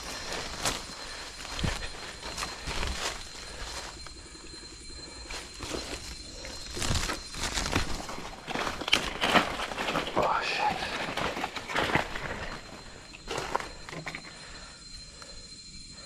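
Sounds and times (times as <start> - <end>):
footsteps crunching through leaves: 0.0 - 4.0, 5.3 - 12.7.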